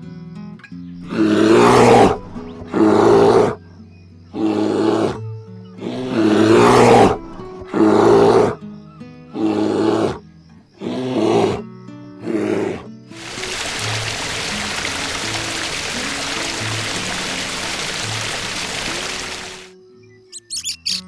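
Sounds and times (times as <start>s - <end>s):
large animal roaring: 1.0s - 3.6s, 4.4s - 5.2s, 5.8s - 8.6s, 9.3s - 10.2s, 10.8s - 11.6s, 12.2s - 19.7s.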